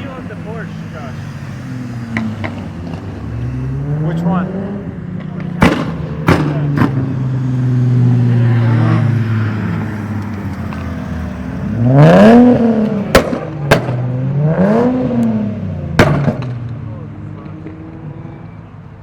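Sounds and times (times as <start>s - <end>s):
car engine revving: 0.0s - 18.3s
exhaust pops: 5.2s - 7.2s, 12.7s - 14.1s, 15.2s - 16.8s.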